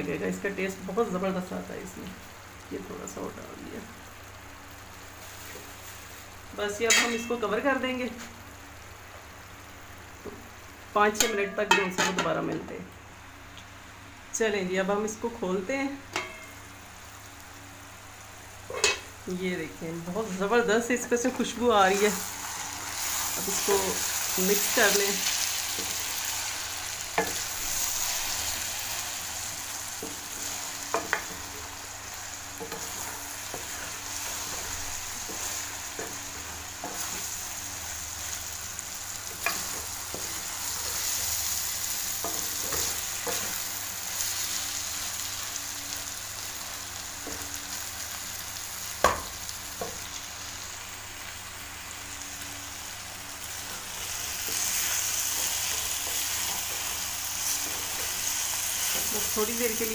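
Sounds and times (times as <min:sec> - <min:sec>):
food sizzling in a metal pan: 0:00.0 - 0:13.6, 0:14.5 - 0:59.9
spatula stirring food: 0:22.0 - 0:44.9, 0:53.5 - 0:59.9.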